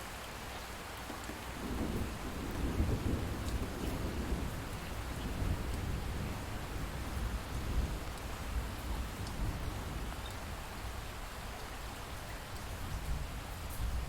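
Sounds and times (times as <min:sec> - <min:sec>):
light rain: 0:00.0 - 0:14.0
distant thunder rolling: 0:01.6 - 0:08.0.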